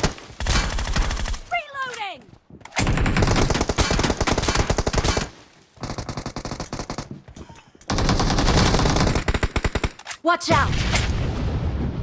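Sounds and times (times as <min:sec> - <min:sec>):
video game automatic gunfire: 0:02.8 - 0:07.1, 0:07.9 - 0:10.0.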